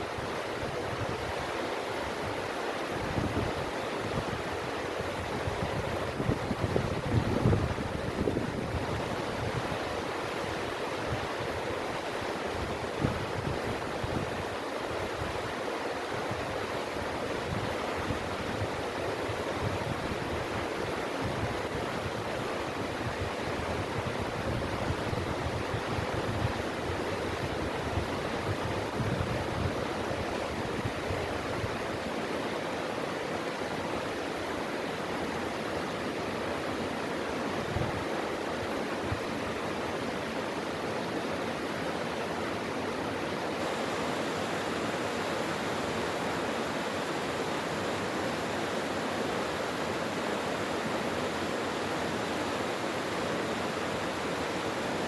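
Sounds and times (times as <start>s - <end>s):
stream rushing: 0.0s - 55.0s
wind buffeting microphone: 5.2s - 9.8s.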